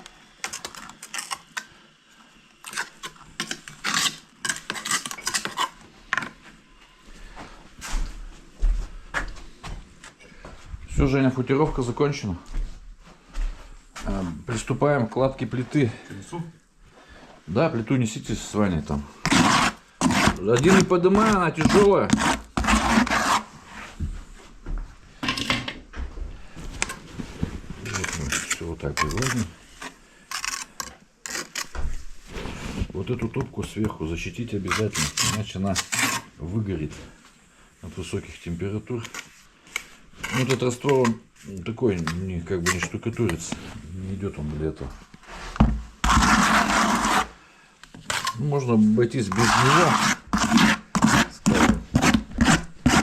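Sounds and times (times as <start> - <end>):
masonry tools scraping brick: 2.7 - 6.3, 19.2 - 23.9, 27.8 - 33.3, 34.5 - 36.4, 39.0 - 43.8, 45.2 - 47.4, 48.0 - 53.0.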